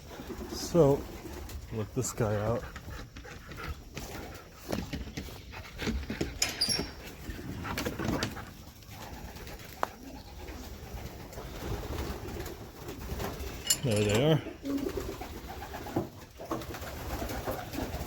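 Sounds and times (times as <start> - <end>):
pigeons cooing: 0.0 - 18.0
handling noises: 13.3 - 14.6.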